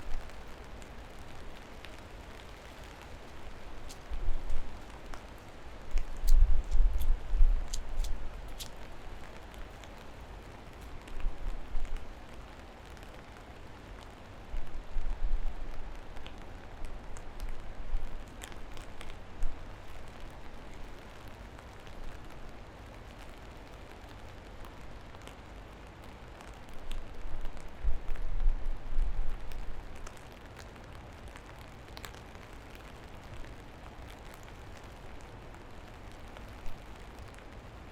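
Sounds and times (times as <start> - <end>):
steady rain falling: 0.0 - 37.9
water drips ticking: 3.1 - 10.0.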